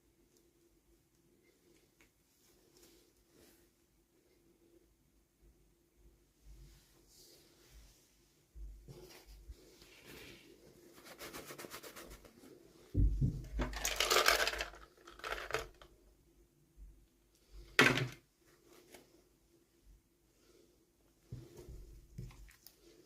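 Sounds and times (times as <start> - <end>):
plastic wrapping crinkling: 13.6 - 15.8.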